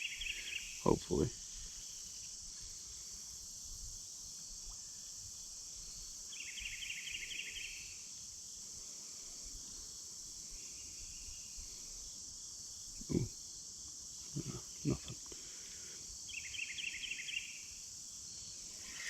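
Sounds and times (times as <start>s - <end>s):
insect chorus: 0.0s - 19.0s
rapid pulsing insect trill: 0.0s - 19.0s.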